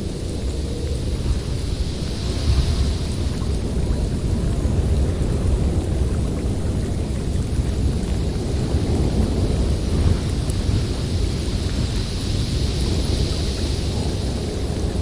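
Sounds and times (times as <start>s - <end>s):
blizzard wind blowing: 0.0s - 15.0s.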